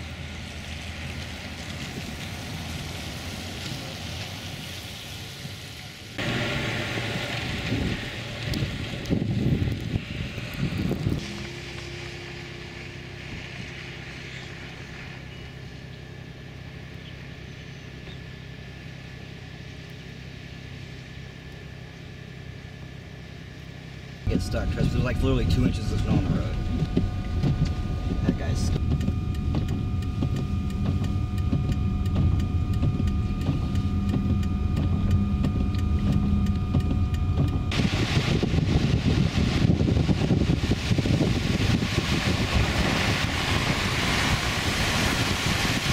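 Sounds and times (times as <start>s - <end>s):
car engine and road noise: 0.0s - 45.9s
faint whine: 5.7s - 45.9s
light regular ticking: 24.3s - 37.7s.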